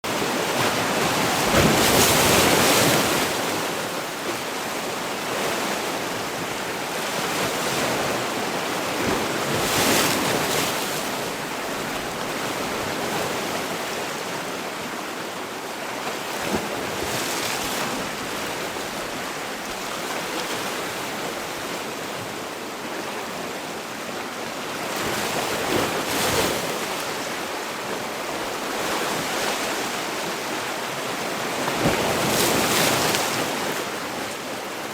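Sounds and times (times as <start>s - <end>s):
sea waves breaking on shore: 0.1s - 34.9s.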